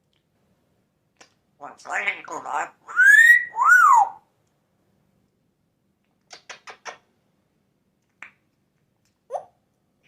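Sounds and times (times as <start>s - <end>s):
parrot whistling: 2.9s - 4.2s.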